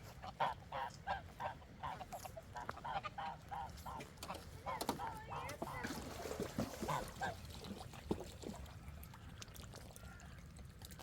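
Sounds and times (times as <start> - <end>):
farm fowl honking calls: 0.2 - 4.0.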